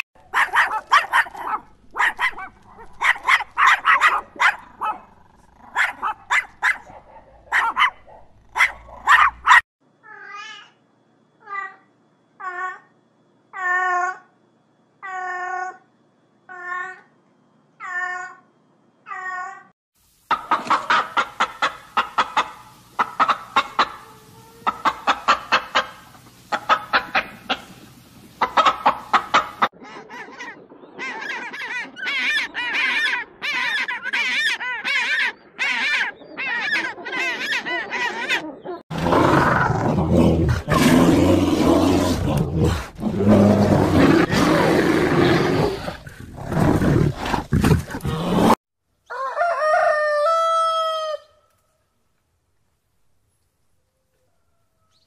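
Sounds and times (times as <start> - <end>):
bear growling: 38.0 - 48.6.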